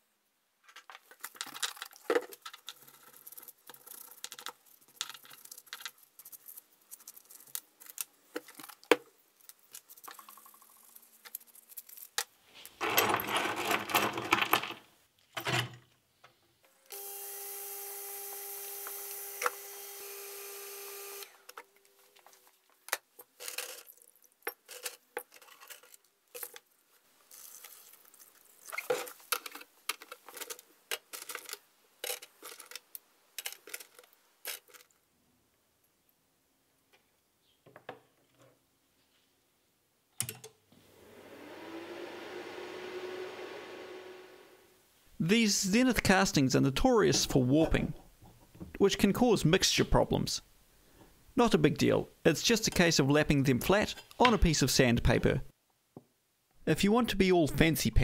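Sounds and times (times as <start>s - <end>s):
ultrasonic cleaner humming and hissing: 16.9s - 21.4s, 40.8s - 44.8s
loud rough buzz: 40.9s - 44.8s.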